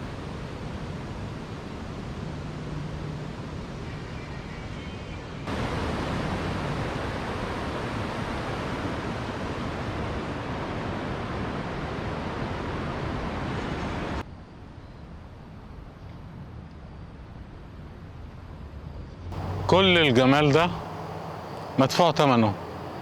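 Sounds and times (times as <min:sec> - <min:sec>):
steady rushing noise: 0:05.4 - 0:14.2, 0:19.3 - 0:23.0.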